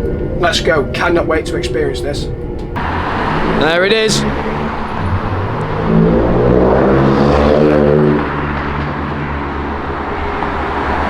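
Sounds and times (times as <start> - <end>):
sports car engine running: 2.5 - 11.0.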